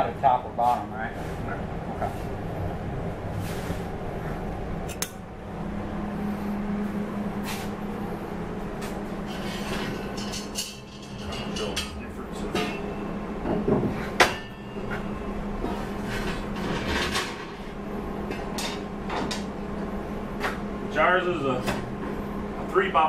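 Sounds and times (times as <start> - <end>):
low hum: 1.4 - 20.9
steel plates clinking: 9.3 - 13.0
sharp metal clanks: 9.8 - 13.0, 14.2 - 15.0.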